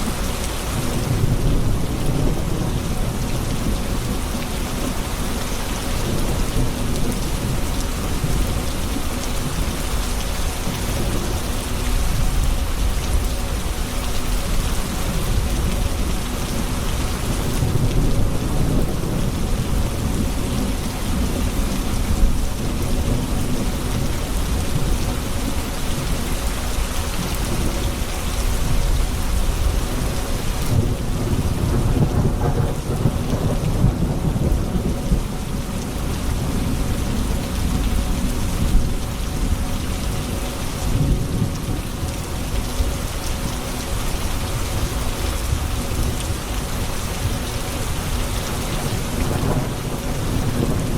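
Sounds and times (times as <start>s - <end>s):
heavy rain falling: 0.0s - 50.9s
rolling thunder: 30.6s - 39.6s, 48.9s - 50.9s.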